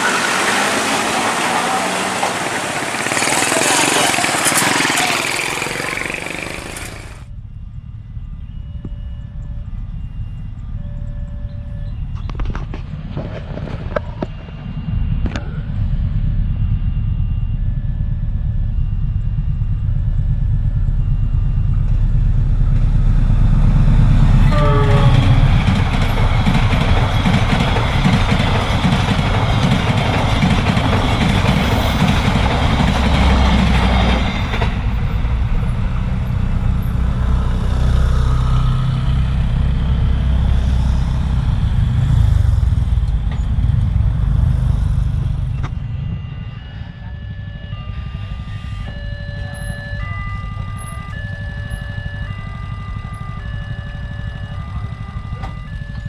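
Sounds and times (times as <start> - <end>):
crossing warning tone: 0.0 - 7.3, 19.0 - 56.0
train rumbling: 0.0 - 56.0
wheels rushing on rail: 0.0 - 56.0
train horn: 24.0 - 29.5.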